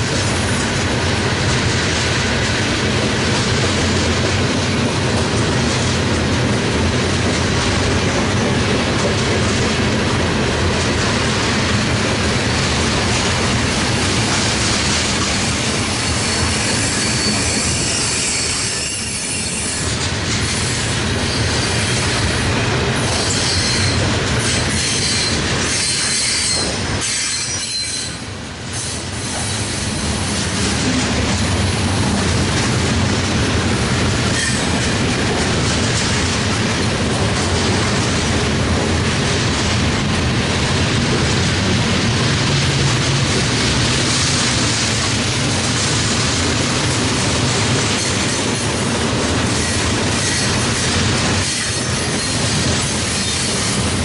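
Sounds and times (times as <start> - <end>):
train wheels rumbling on rails: 0.0 - 54.0
high-pitched wheel squeal: 15.9 - 19.9, 23.1 - 28.2.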